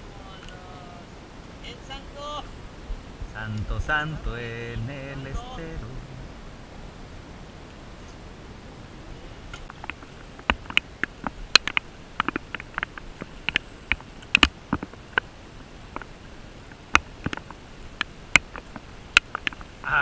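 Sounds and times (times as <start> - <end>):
steady low hiss: 0.0 - 20.0
raindrops ticking: 9.5 - 19.8.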